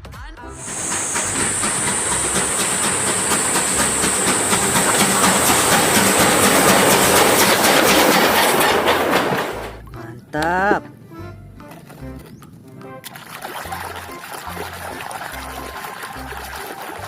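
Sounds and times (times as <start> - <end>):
noisy rush: 0.6 - 9.7
train wheels clickety-clack: 0.6 - 9.8.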